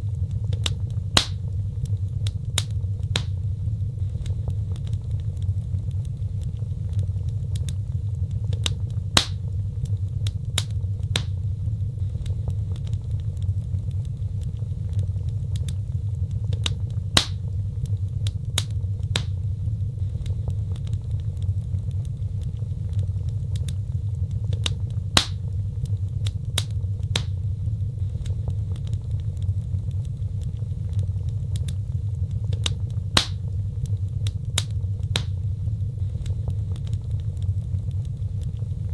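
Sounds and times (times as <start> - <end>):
fire crackling and popping: 0.0 - 38.9
low rumble of flames: 0.0 - 38.9.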